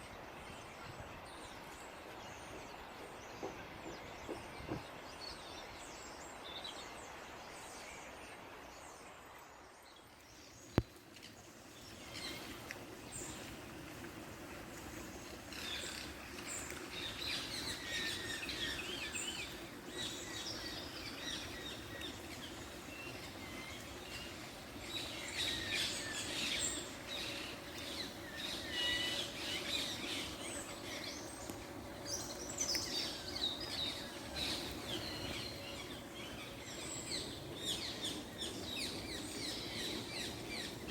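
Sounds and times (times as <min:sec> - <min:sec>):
low background hum: 0:00.0 - 0:40.9
small birds chirping: 0:14.5 - 0:40.9.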